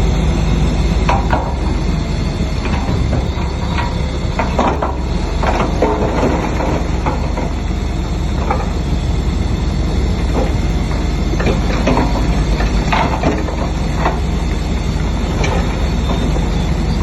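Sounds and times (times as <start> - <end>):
bulldozer diesel engine: 0.0 - 17.0
steel tracks clanking: 0.0 - 17.0.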